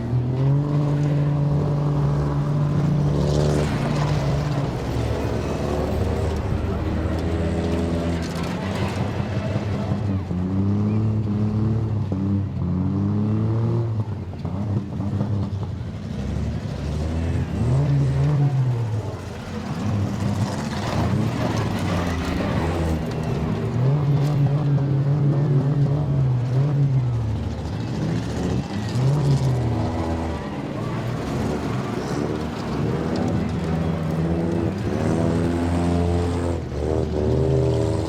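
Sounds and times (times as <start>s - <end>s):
car engines revving: 0.0s - 38.0s.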